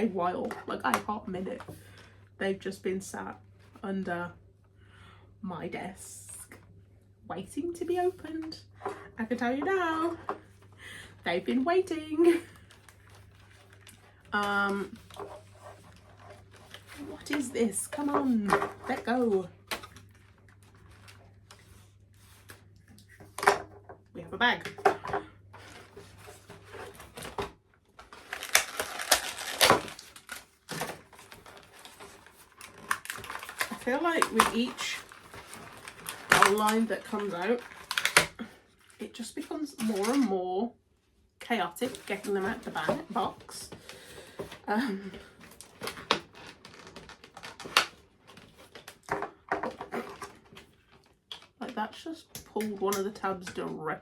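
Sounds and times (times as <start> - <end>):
plastic packaging crinkling: 25.6 - 39.0, 45.3 - 51.7.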